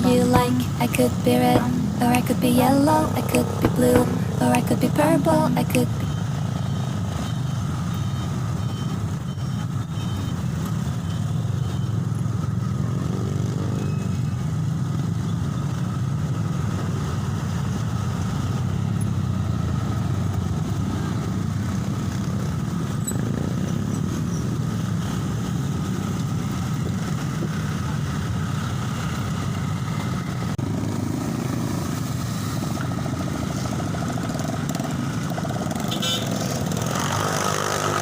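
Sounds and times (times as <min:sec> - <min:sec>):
truck engines rumbling: 0:00.0 - 0:38.0.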